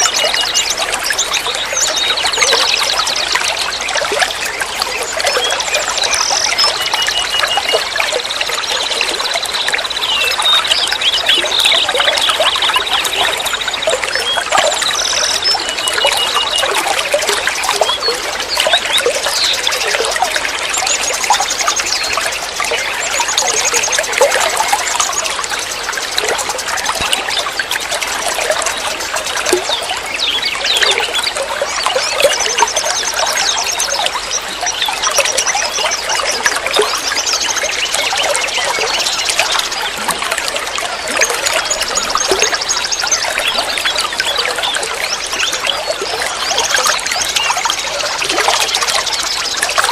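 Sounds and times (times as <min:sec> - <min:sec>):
water trickling and babbling: 0:00.0 - 0:49.9.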